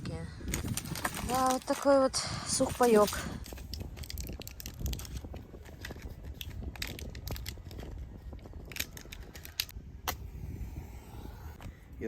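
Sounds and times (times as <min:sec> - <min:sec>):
ration packaging rustling: 0:00.5 - 0:09.7
small clicks and crackles: 0:00.5 - 0:09.7.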